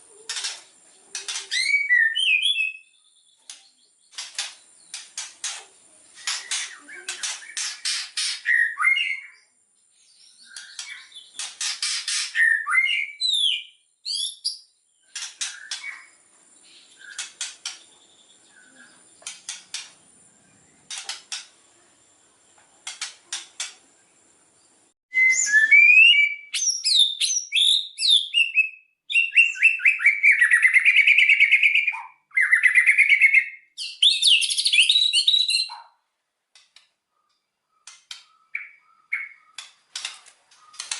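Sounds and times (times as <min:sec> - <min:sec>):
bird trills and whistles: 0:01.2 - 0:03.0, 0:06.2 - 0:09.5, 0:10.4 - 0:14.6, 0:25.1 - 0:35.8
bird rattling clicks: 0:39.6 - 0:40.9.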